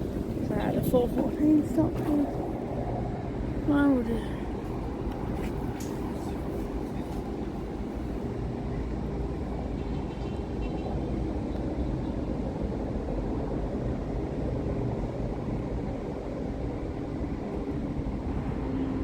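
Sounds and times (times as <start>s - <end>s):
low vehicle rumble: 0.0s - 8.4s
constant hum: 0.0s - 19.0s.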